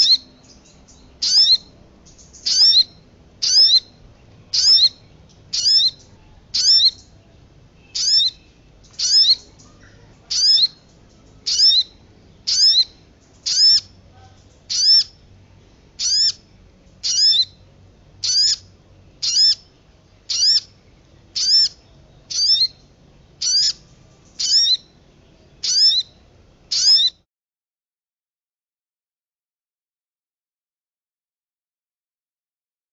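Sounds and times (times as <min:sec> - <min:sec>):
bird calling high sweeping notes: 0:00.0 - 0:07.2, 0:07.8 - 0:14.0, 0:14.7 - 0:15.2, 0:16.0 - 0:19.7, 0:20.3 - 0:25.0, 0:25.6 - 0:27.2.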